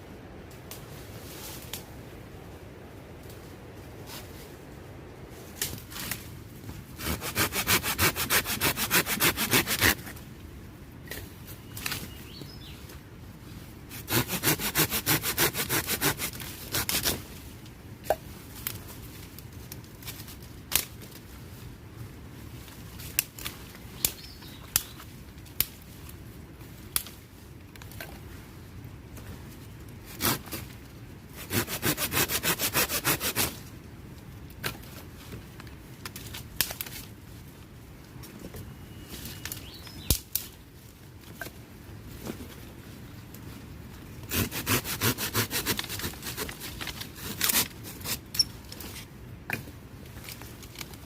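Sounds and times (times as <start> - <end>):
hand saw cutting wood: 7.0 - 10.1, 13.9 - 17.2, 30.2 - 30.6, 31.4 - 33.6, 44.3 - 48.2.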